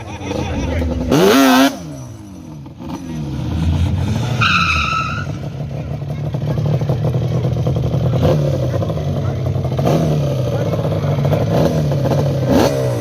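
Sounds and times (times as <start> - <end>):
car engine revving: 0.0 - 13.0
high-pitched squeal: 4.0 - 5.6.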